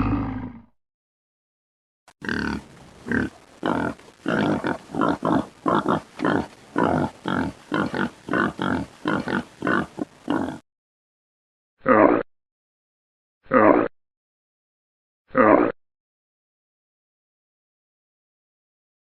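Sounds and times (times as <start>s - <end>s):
pig grunting: 0.0s - 0.7s, 2.2s - 10.6s.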